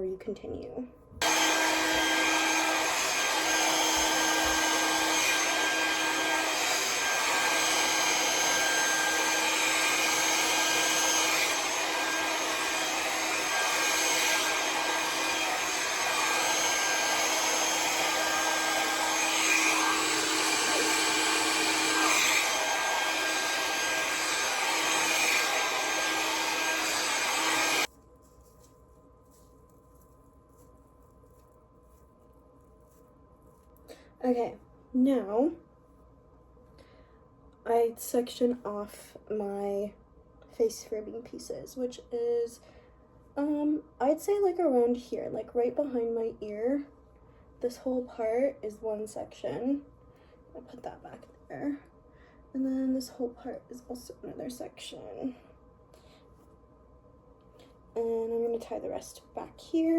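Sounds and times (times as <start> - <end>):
hair dryer blowing air: 1.2 - 27.9.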